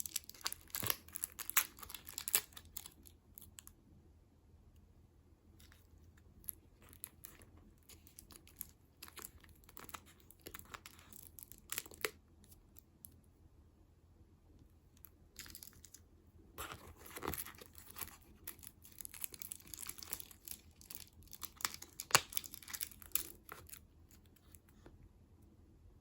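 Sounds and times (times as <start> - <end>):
snack wrapper tearing and crinkling: 0.0 - 3.7, 6.8 - 12.2, 16.6 - 24.3.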